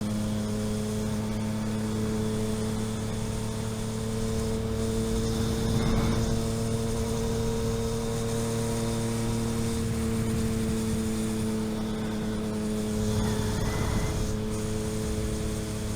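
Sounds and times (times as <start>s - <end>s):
vehicle engine running: 0.0s - 15.9s
rush of noise: 9.3s - 15.9s.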